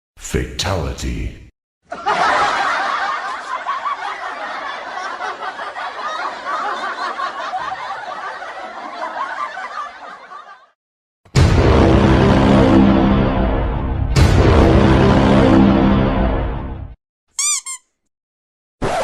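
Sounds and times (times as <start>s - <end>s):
continuous cackling laughter: 1.9s - 10.8s.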